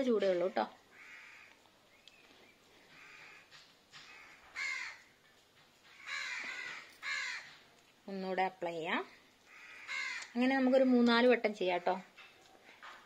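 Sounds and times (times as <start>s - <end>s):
bird calling: 6.0s - 7.6s, 9.5s - 10.4s.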